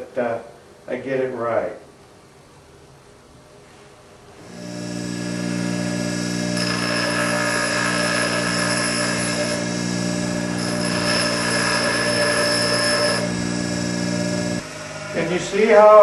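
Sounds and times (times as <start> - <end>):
grinding wheel motor hum: 4.4 - 16.0
harsh whining grinding: 4.4 - 16.0.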